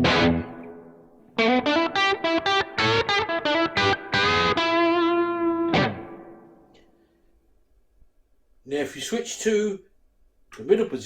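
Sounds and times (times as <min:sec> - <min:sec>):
electric guitar through an amp: 0:00.0 - 0:06.7.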